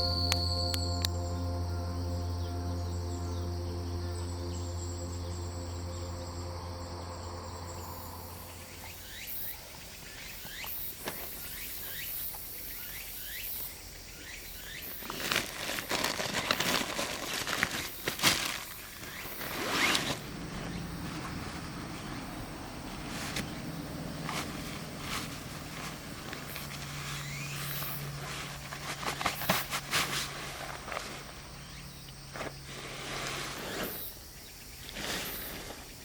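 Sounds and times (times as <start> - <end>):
soft ambient music: 0.0 - 9.9
camping gear rustling and scraping: 14.8 - 36.0.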